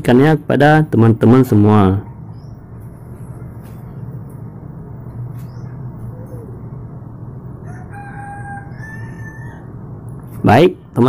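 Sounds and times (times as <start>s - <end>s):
steady low hum: 0.0s - 11.0s
chicken calling: 5.4s - 10.0s.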